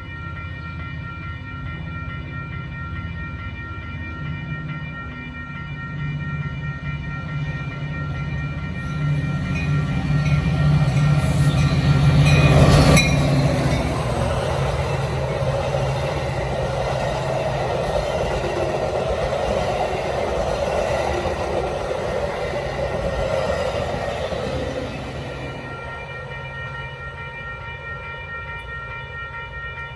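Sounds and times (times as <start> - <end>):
diesel locomotive engine: 0.0 - 29.2
train cars rolling: 8.3 - 27.0.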